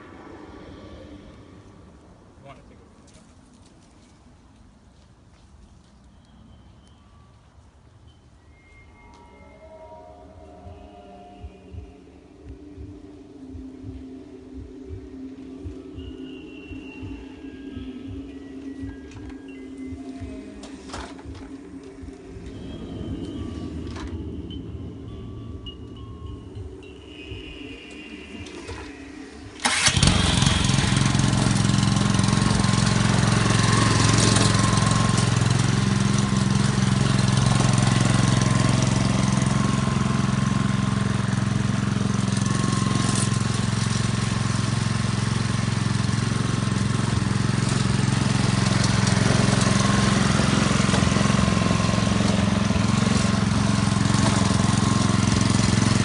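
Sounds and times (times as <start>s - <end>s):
lawn mower engine running: 28.4s - 56.0s.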